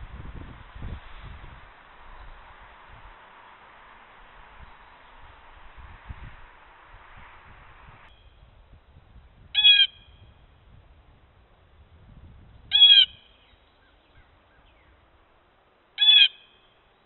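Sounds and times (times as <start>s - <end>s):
bird calling: 9.6s - 10.3s, 12.7s - 15.0s, 16.0s - 17.0s.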